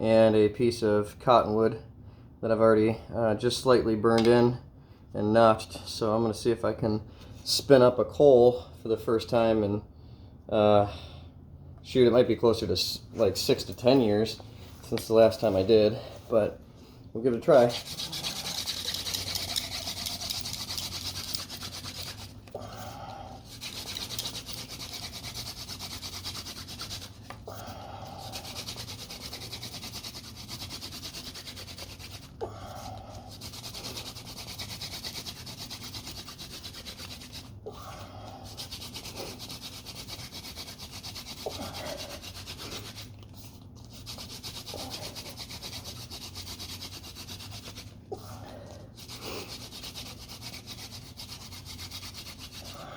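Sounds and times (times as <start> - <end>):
wooden spindle rubbing rasp: 17.6 - 22.5, 23.4 - 27.3, 28.1 - 32.4, 33.3 - 37.6, 38.5 - 43.2, 43.9 - 48.0, 49.0 - 52.8.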